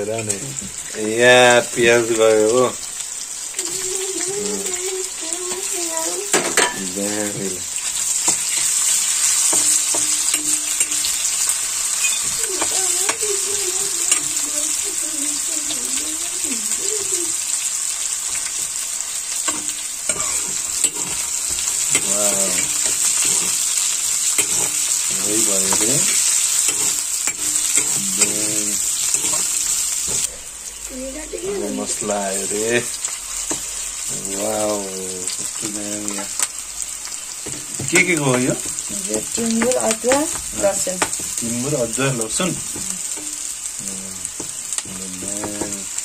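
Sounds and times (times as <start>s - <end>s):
chicken sizzling in oil: 0.0s - 46.0s
metal spoon scraping a wok: 19.4s - 30.3s.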